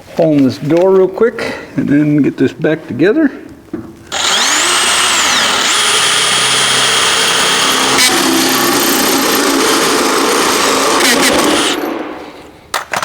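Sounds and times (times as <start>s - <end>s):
electric drill cutting sheet steel: 4.1s - 12.0s.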